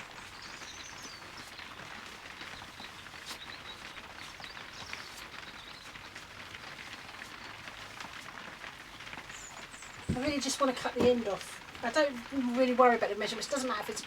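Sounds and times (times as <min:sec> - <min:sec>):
steady rain falling: 0:00.0 - 0:14.0
drops ticking on surfaces: 0:01.0 - 0:11.9.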